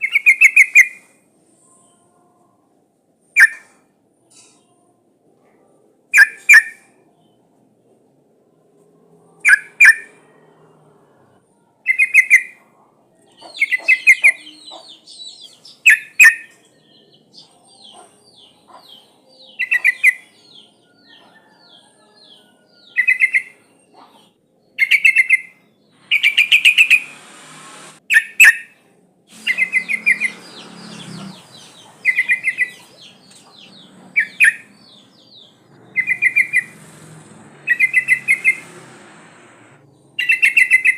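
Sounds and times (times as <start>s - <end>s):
bird rapid chirping calls: 13.4s - 18.1s, 24.8s - 27.5s, 29.3s - 37.0s, 37.6s - 38.9s, 40.2s - 40.9s
hiss: 26.1s - 28.0s.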